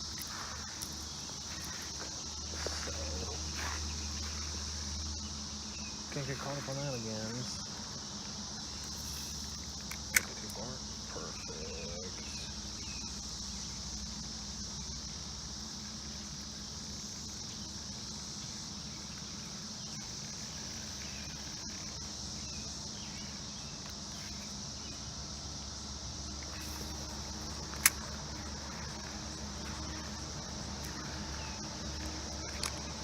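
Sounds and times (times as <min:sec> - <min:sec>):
cicada chorus drone: 0:00.0 - 0:33.0
low steady rumble: 0:25.1 - 0:33.0.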